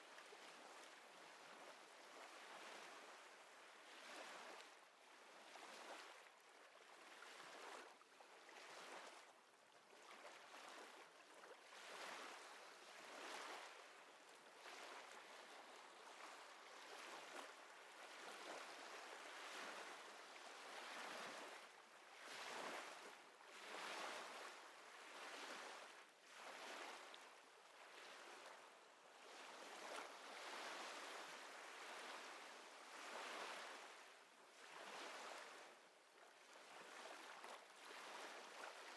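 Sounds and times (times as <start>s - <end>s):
small waves lapping: 11.8s - 38.9s.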